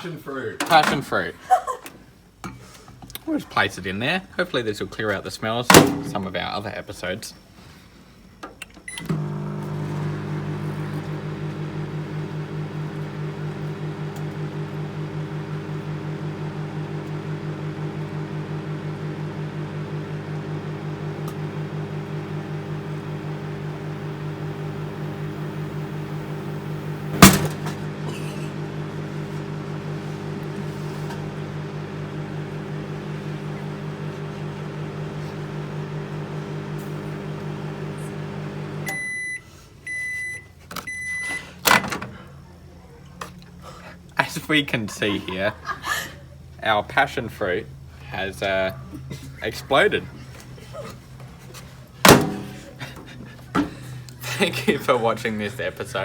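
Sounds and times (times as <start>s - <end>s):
microwave oven humming: 8.9s - 41.3s, 51.9s - 54.7s
fruit bursting bang: 27.2s - 27.6s.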